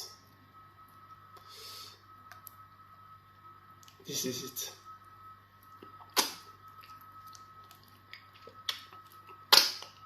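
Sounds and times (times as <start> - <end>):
wet eating smacks: 5.8 - 10.0.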